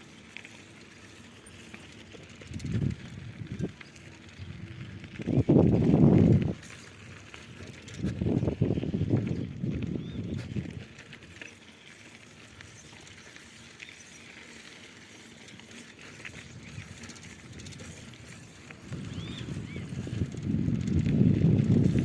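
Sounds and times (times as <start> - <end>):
bird chirps: 19.1 - 20.0.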